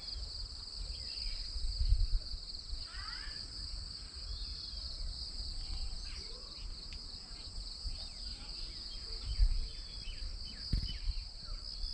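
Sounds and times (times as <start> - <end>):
insect chorus: 0.0 - 11.9
bird chirps: 7.9 - 11.9.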